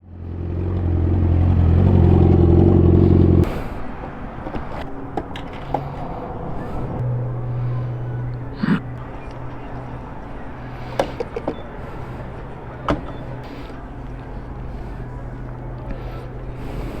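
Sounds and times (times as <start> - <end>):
motorcycle engine running: 0.0 - 3.5, 7.0 - 17.0
low engine hum: 0.0 - 17.0.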